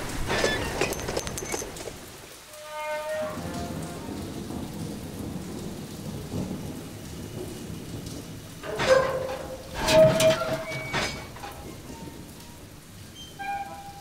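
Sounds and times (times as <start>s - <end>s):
heavy rain: 0.0s - 14.0s
low rolling thunder: 2.0s - 14.0s.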